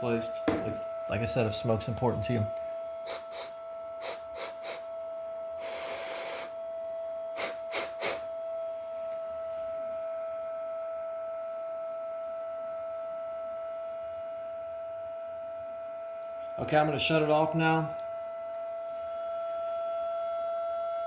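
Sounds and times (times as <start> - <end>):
high-pitched fan motor whine: 0.0 - 21.0.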